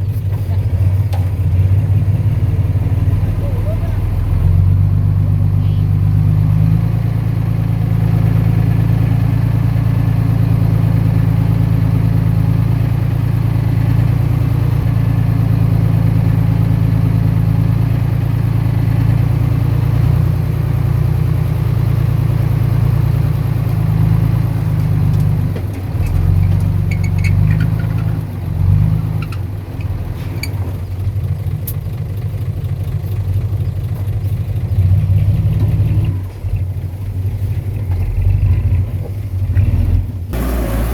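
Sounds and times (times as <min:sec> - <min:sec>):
heavy diesel engine droning: 0:00.0 - 0:40.9
metallic clanks and clatter: 0:24.8 - 0:28.5.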